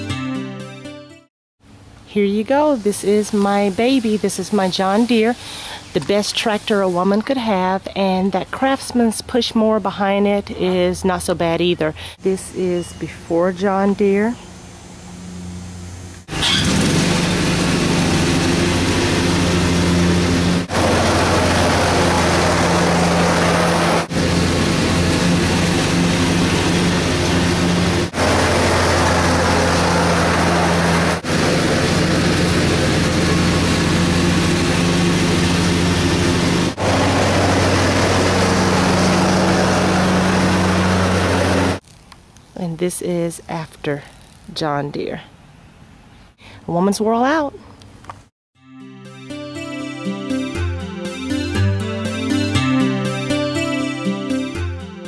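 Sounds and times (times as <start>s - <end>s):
lawn tractor engine running: 16.3s - 41.8s.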